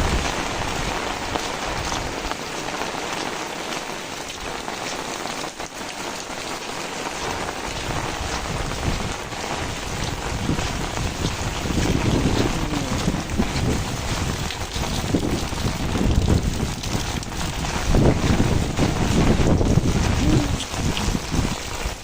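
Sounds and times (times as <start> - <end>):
heavy rain falling: 0.0 - 22.0
gusty wind rumble: 7.8 - 22.0.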